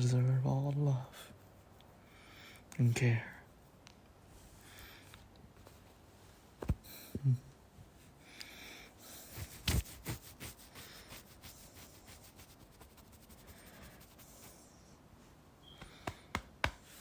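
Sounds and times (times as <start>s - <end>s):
cloth rustling and rubbing: 9.1s - 14.6s.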